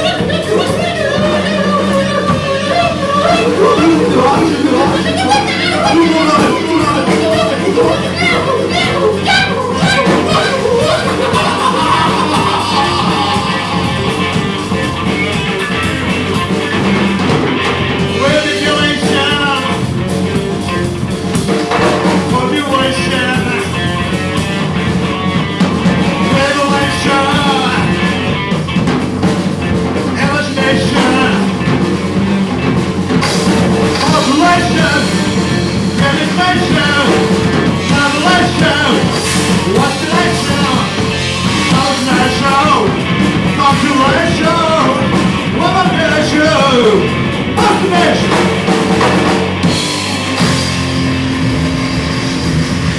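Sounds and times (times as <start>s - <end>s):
person singing: 0.0s - 15.7s, 18.0s - 19.9s, 26.2s - 28.4s, 30.1s - 31.7s, 33.2s - 48.6s
live rock band playing: 0.0s - 52.9s.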